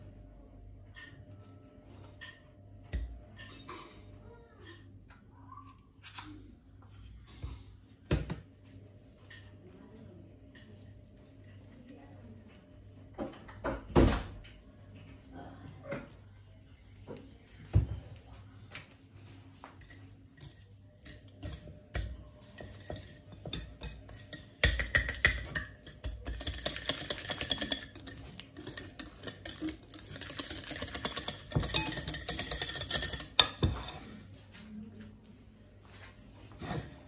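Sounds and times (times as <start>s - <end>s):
rhythmic stirring clatter: 19.8s - 33.6s
utensil clinking against bowl: 19.8s - 33.9s.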